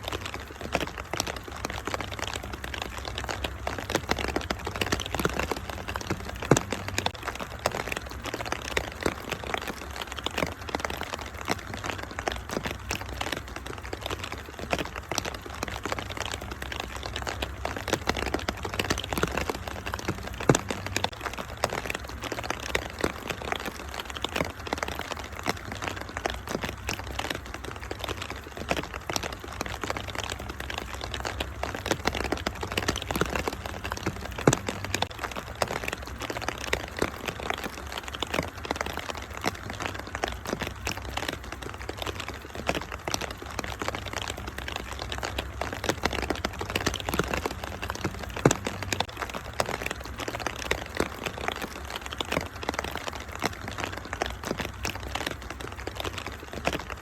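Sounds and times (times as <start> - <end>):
rain hissing: 0.0 - 57.0
wood fire crackling: 0.0 - 57.0.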